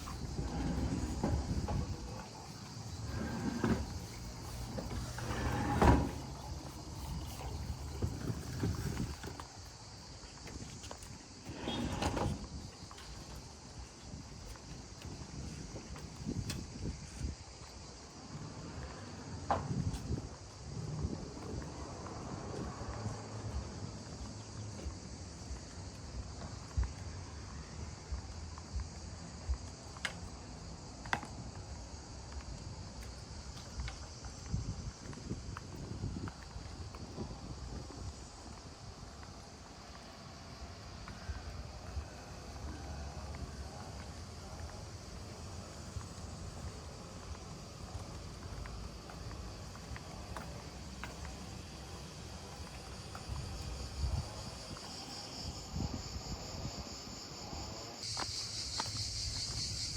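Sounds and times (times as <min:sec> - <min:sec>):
wind rumble on microphone: 0:00.0 - 0:09.7, 0:10.4 - 0:29.9, 0:31.2 - 0:39.6, 0:52.5 - 0:58.0
insects chirring: 0:00.0 - 0:59.9.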